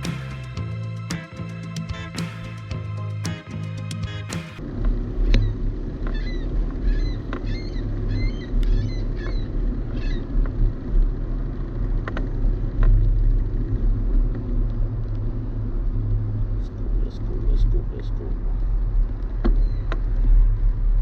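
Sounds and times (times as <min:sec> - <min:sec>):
wind rumble on microphone: 0:04.6 - 0:21.0
bird chirping: 0:05.4 - 0:10.3, 0:19.5 - 0:19.9.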